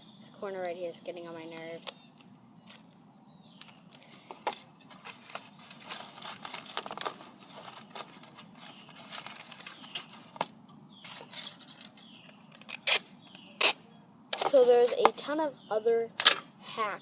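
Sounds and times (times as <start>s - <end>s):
foil covered box rustling: 4.9s - 12.0s.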